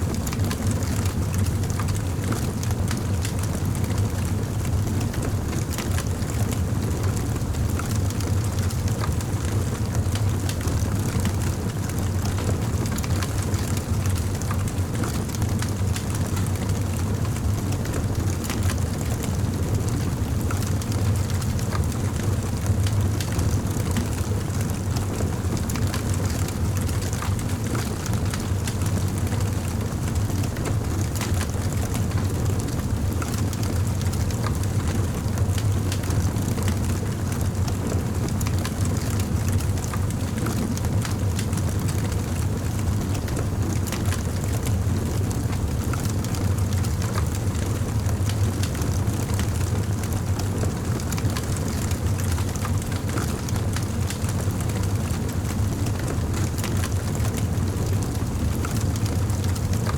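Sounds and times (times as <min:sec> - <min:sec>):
fire low rumble: 0:11.2 - 0:59.9
campfire crackling: 0:48.2 - 0:59.8.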